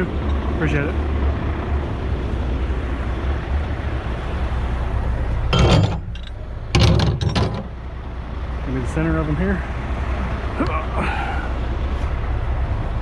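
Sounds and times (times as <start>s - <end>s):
diesel truck engine idling: 0.0s - 6.8s, 7.6s - 13.0s
engine clatter: 5.2s - 11.6s.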